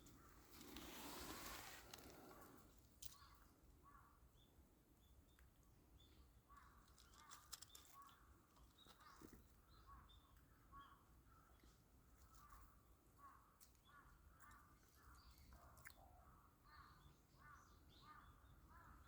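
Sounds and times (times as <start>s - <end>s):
faint bird calls: 6.0s - 19.0s.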